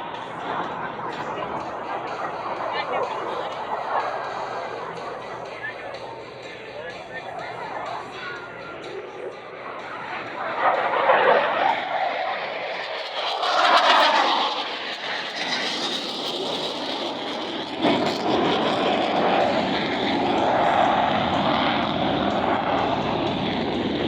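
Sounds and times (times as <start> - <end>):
deep jet rush: 0.0 - 24.0
jets flying past: 0.0 - 24.0.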